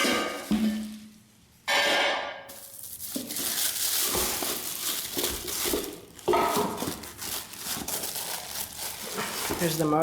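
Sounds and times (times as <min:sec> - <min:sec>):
packing material crinkling: 0:02.5 - 0:10.0.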